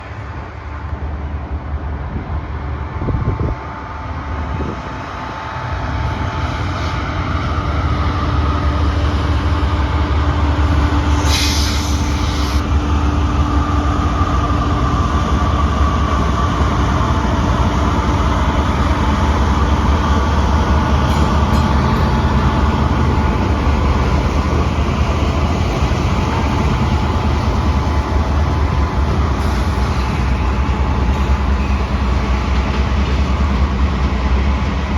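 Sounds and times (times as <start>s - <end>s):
freight train rumbling past: 0.0s - 34.9s
burst of hiss: 11.1s - 12.6s.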